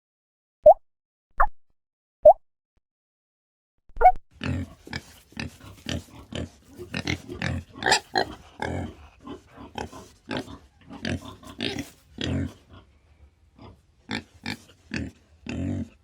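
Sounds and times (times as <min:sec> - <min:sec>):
pig grunting: 0:04.4 - 0:13.0, 0:13.6 - 0:16.0.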